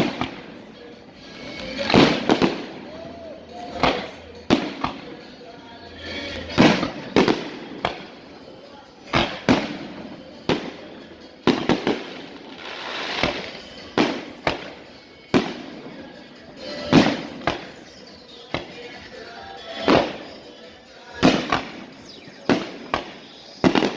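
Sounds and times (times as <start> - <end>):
sharp bangs with echo: 21.2 - 23.9.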